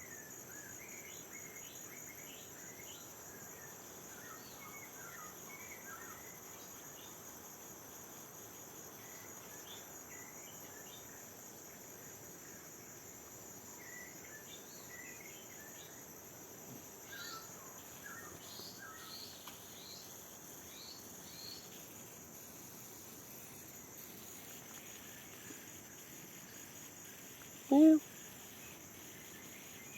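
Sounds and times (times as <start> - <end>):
high-pitched insect drone: 16.9 - 29.9.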